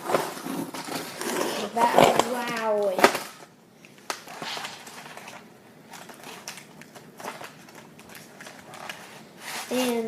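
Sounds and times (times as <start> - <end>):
packaging clicks and crinkles: 2.2 - 10.0.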